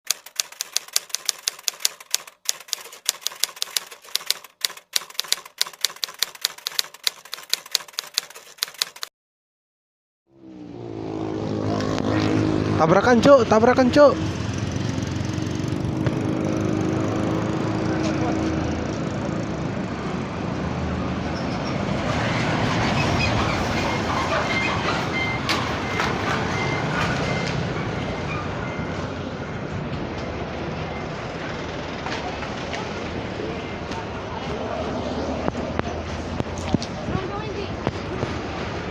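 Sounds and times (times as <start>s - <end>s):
typewriter keys clicking: 0.1s - 9.1s
heavy road traffic rumbling: 10.3s - 38.9s.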